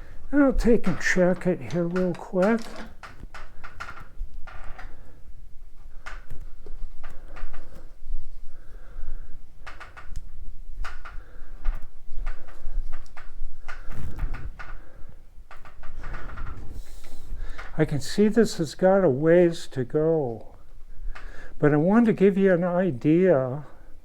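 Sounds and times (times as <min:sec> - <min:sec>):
metal tools clicking and knocking: 0:00.8 - 0:03.1.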